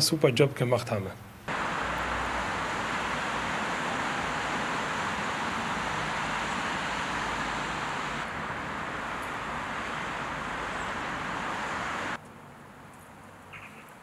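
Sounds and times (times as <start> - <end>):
steady rushing noise: 1.5 - 12.2.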